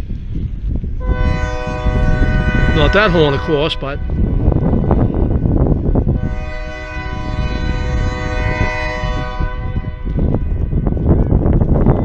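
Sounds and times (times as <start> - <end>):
wind rumble on microphone: 0.0 - 12.0
locomotive air horn blast: 1.0 - 5.2, 6.1 - 10.6.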